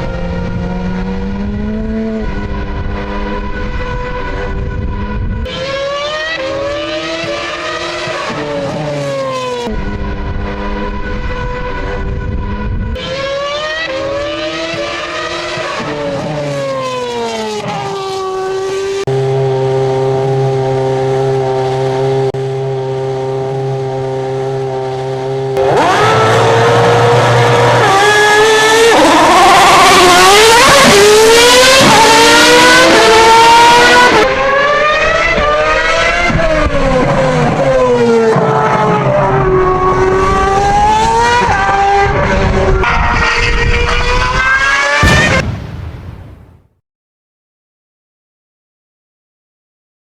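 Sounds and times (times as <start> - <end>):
racing car engines revving: 0.0 - 46.4.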